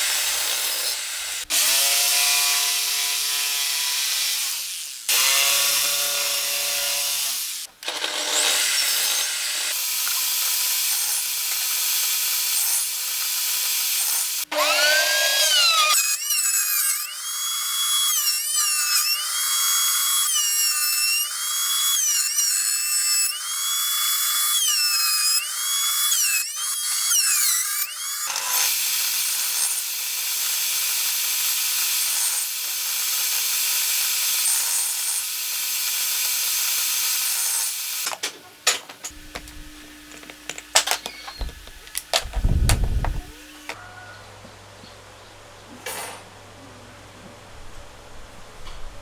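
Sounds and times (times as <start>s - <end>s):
power tool motor whining: 37.7s - 43.8s
sharp knocks and clatters: 38.1s - 43.8s.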